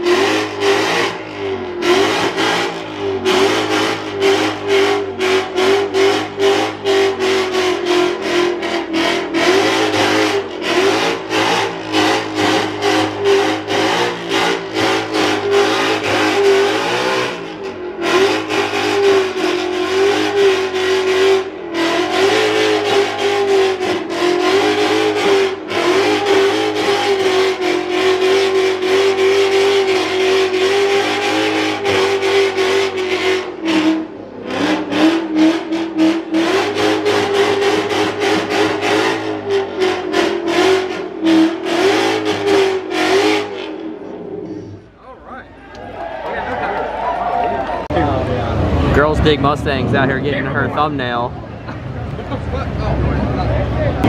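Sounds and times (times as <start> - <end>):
car engine at high revs: 0.0 - 45.0, 47.7 - 54.0.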